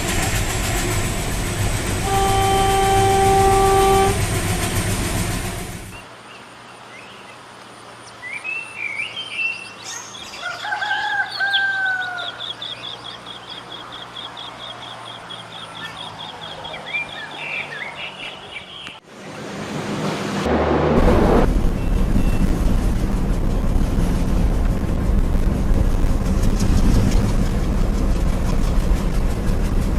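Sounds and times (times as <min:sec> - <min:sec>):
birds chirping: 0:12.2 - 0:19.0.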